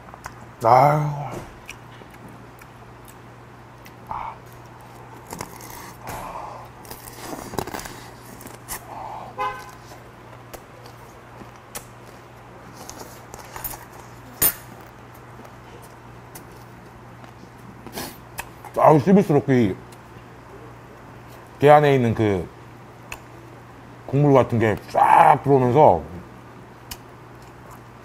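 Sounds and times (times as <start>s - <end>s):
steady low hum: 0.0s - 28.0s
chewing and crunching crab: 1.6s - 14.3s
honk-like tone: 9.4s - 9.8s.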